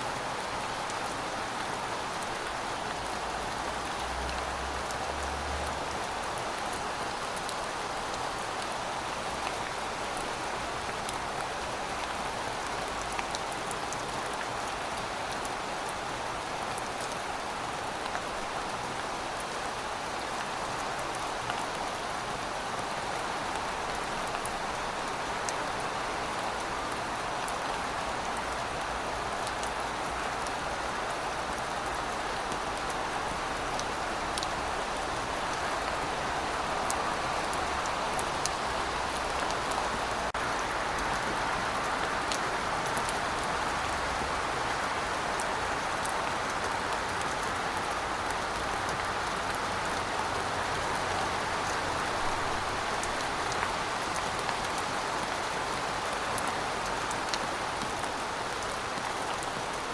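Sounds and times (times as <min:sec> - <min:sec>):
raindrops ticking on surface: 0:00.2 - 0:59.9.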